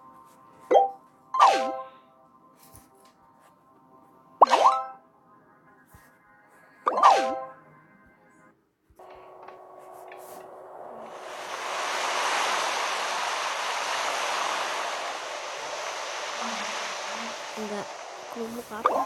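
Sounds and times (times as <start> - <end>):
steady rushing hiss: 9.0 - 19.0.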